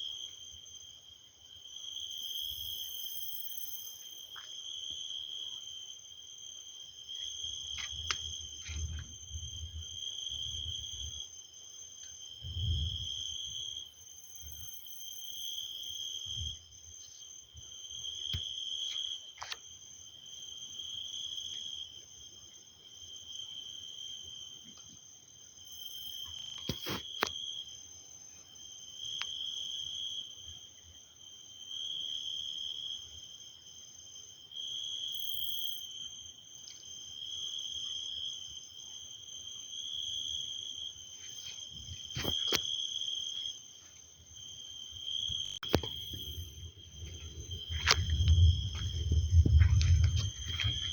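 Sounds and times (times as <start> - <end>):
crickets chirping: 0.0 - 50.9
low rumbles: 46.0 - 50.9.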